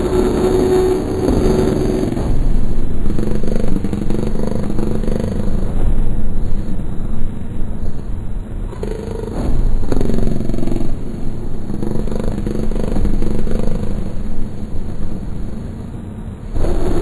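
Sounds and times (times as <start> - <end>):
noise music drone: 0.0 - 17.0.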